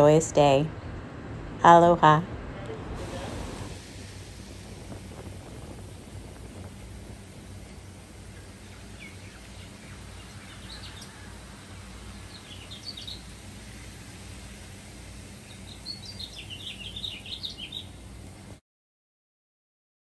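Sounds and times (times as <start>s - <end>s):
low background rumble: 0.0s - 18.6s
birds chirping: 4.6s - 18.4s.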